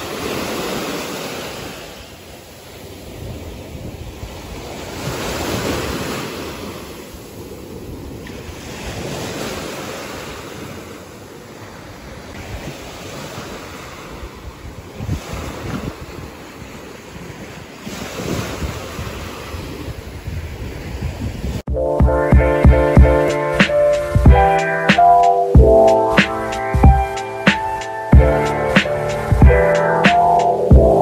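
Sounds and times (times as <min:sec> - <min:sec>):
sea waves breaking on beach: 0:00.0 - 0:21.7
wind buffeting microphone: 0:02.8 - 0:10.8, 0:11.7 - 0:21.8.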